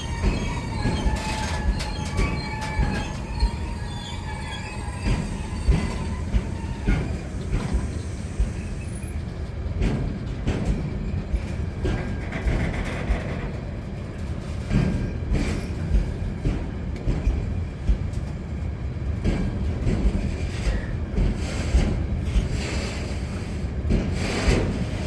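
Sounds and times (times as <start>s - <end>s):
wheels and wagons knocking: 0.0s - 8.6s
train wheels squealing: 0.0s - 9.4s, 14.7s - 16.6s, 19.4s - 25.0s
freight train rumbling past: 0.0s - 25.0s.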